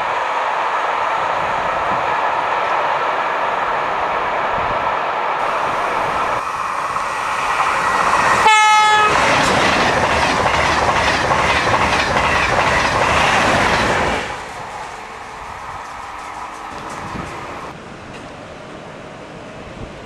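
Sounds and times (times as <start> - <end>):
train passing at speed: 0.0 - 20.0
wheel clatter over rail joints: 6.6 - 17.8
train horn blast: 8.4 - 9.2.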